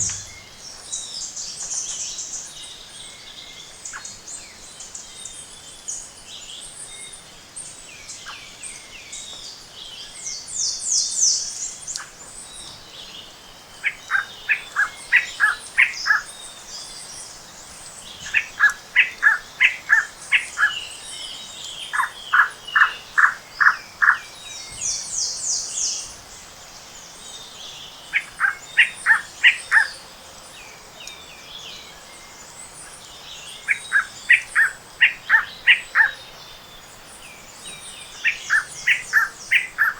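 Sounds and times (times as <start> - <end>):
birds singing short clear notes: 0.0 - 2.4.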